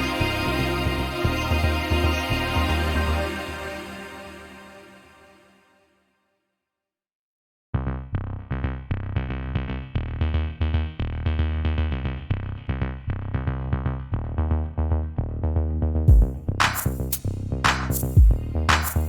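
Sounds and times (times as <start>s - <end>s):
electronic music with drum machine: 16.1s - 19.0s.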